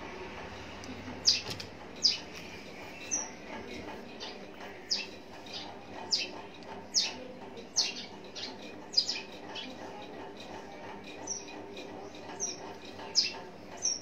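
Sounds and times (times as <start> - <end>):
bird chirping: 1.2 - 3.4, 12.3 - 14.0.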